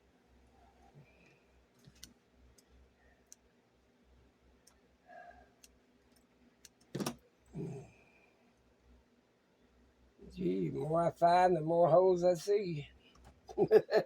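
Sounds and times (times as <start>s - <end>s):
faint clicks and handling noises: 0.8s - 7.4s, 13.0s - 13.5s.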